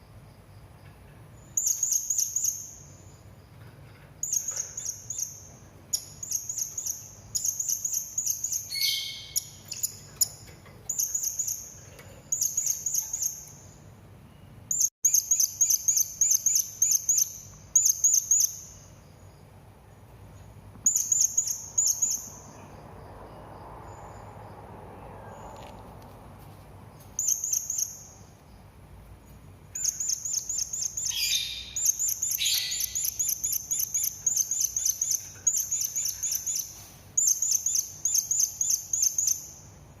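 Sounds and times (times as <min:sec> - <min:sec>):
parrot high chirps: 0:06.0 - 0:11.7, 0:29.8 - 0:39.6.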